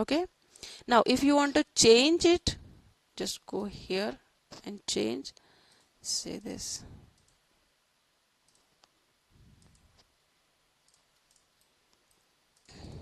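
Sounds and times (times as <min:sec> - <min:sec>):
computer mouse clicks: 0:07.2 - 0:07.4, 0:08.4 - 0:09.0, 0:09.6 - 0:10.1, 0:10.8 - 0:12.8.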